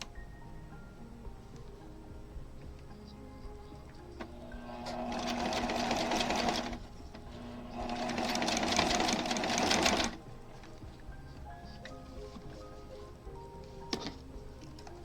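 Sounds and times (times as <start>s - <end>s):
sewing machine stitching: 4.5s - 10.2s.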